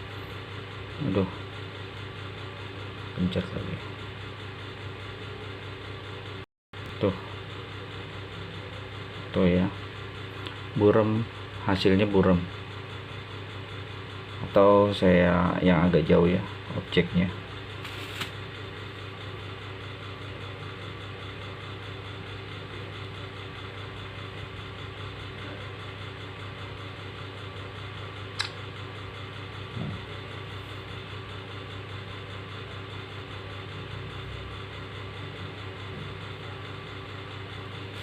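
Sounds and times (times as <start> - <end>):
low mechanical hum: 0.0 - 38.0
sharp click: 28.4 - 28.6.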